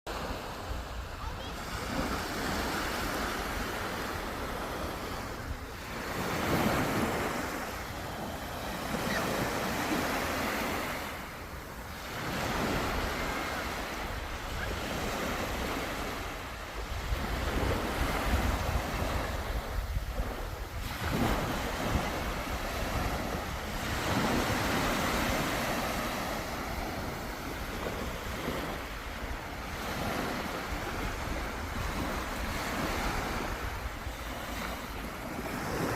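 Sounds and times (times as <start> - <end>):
sea waves breaking on shore: 0.1 - 35.9
wind rumbling on microphone: 16.7 - 25.6.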